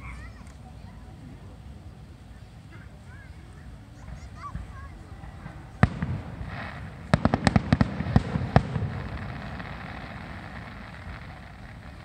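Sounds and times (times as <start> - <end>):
fireworks rumble: 0.0 - 12.0
fireworks bursting: 4.0 - 12.0.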